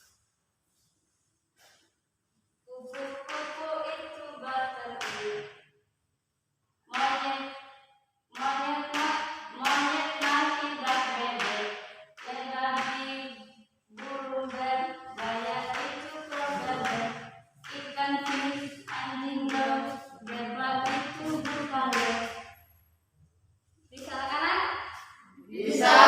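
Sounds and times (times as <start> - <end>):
hand clapping: 5.0 - 5.6, 8.4 - 13.1, 14.0 - 22.5
people singing: 14.4 - 17.2, 25.6 - 26.0.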